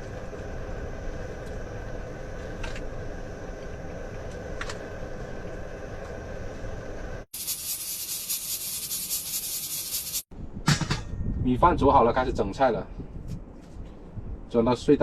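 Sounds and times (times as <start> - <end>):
bright hiss: 7.3 - 10.3
strong wind buffeting a van: 10.3 - 15.0.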